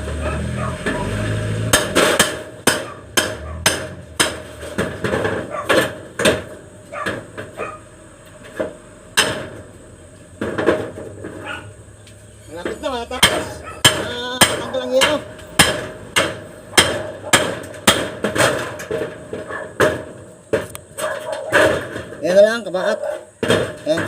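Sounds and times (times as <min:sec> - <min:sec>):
hammer striking: 0:01.7 - 0:07.5, 0:08.6 - 0:09.6, 0:12.6 - 0:20.7.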